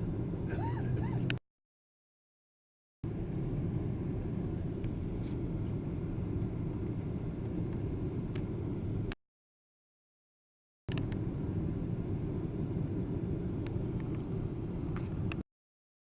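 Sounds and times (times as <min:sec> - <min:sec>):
airliner cabin engine rumble: 0:00.0 - 0:01.4, 0:03.0 - 0:09.2, 0:10.9 - 0:15.4.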